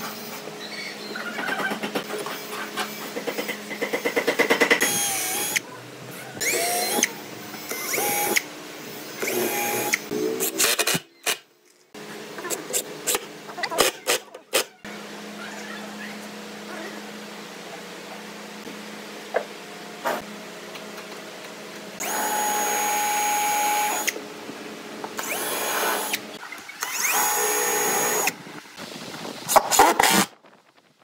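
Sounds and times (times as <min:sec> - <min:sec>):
power tool rhythmic pulsing: 0:02.0 - 0:05.6, 0:06.4 - 0:11.0, 0:22.0 - 0:24.2, 0:25.2 - 0:28.4
motor whining: 0:04.8 - 0:10.8, 0:22.0 - 0:24.2, 0:25.1 - 0:28.4.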